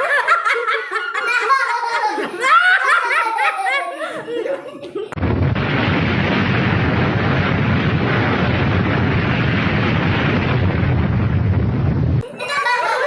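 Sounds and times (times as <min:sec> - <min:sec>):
loud steady rumbling: 0:05.2 - 0:12.2.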